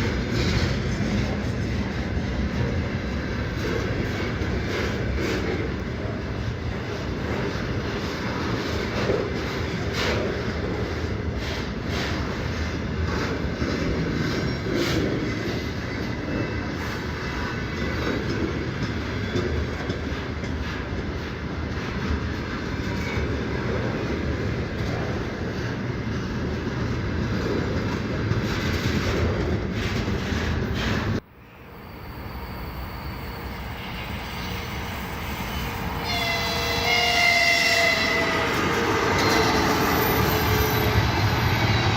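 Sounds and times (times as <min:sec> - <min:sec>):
freight train wagons rolling: 0:00.0 - 0:31.2, 0:32.0 - 0:41.9
train approaching: 0:00.0 - 0:41.9
locomotive horn: 0:34.4 - 0:39.2.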